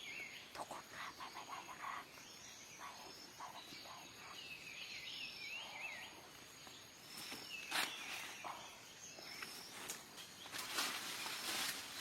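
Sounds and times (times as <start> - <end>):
faint insect drone: 0.0 - 12.0
soft rustles: 9.4 - 12.0.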